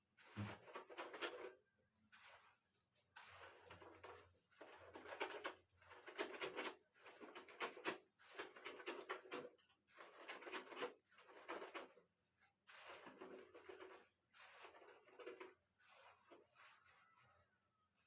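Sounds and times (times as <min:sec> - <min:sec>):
hands scrubbing long hair: 0:01.9 - 0:05.1, 0:12.5 - 0:18.0.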